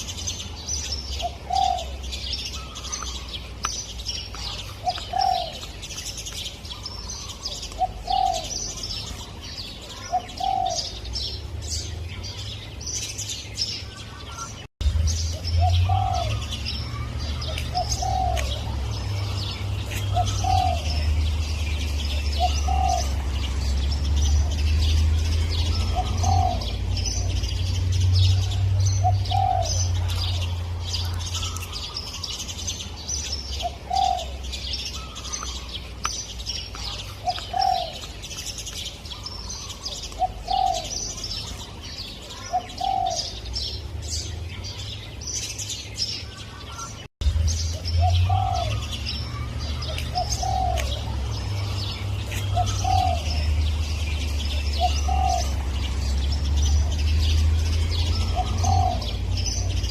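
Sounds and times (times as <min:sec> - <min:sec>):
small birds chirping: 0:00.0 - 0:59.9
dove cooing: 0:01.2 - 0:02.0, 0:04.4 - 0:05.7, 0:06.8 - 0:11.0, 0:15.6 - 0:18.8, 0:19.4 - 0:21.2, 0:22.0 - 0:23.8, 0:25.7 - 0:27.4, 0:28.3 - 0:30.5, 0:33.6 - 0:34.4, 0:36.9 - 0:38.2, 0:39.6 - 0:41.2, 0:42.3 - 0:43.4, 0:48.0 - 0:56.0, 0:58.0 - 0:59.9.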